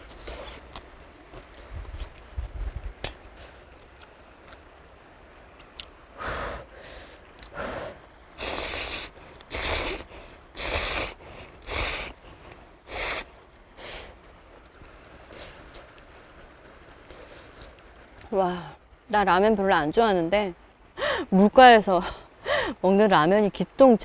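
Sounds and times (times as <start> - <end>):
person slurping noodles: 8.4 - 12.1, 12.9 - 13.2.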